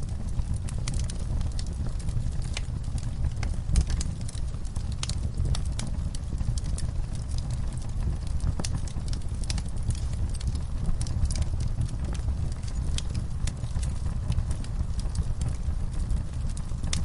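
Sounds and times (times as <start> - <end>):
low rumble of flames: 0.0 - 17.0
wood fire crackling and snapping: 0.0 - 17.0.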